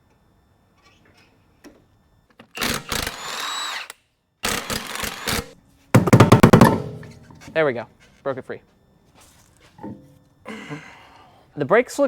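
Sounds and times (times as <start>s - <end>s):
impact wrench whining: 4.5s - 7.6s.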